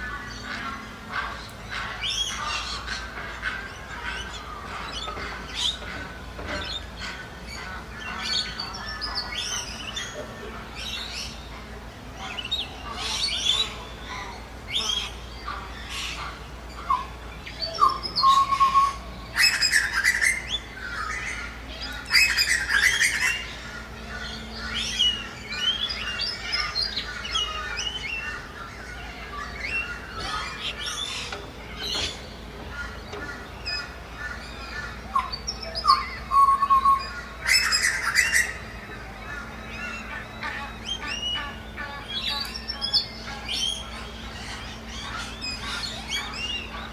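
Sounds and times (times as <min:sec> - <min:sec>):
birds chirping and tweeting: 0:00.0 - 0:46.9
birds squawking harshly: 0:00.0 - 0:46.9.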